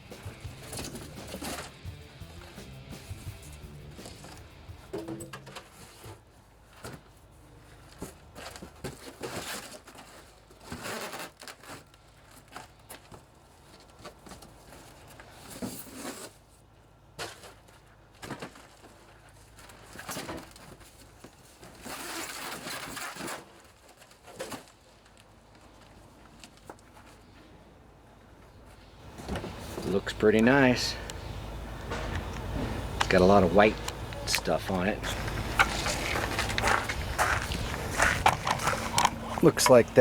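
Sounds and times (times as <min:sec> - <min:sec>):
cardboard rustling and scraping: 0:00.2 - 0:01.8, 0:03.0 - 0:27.4, 0:34.4 - 0:40.0.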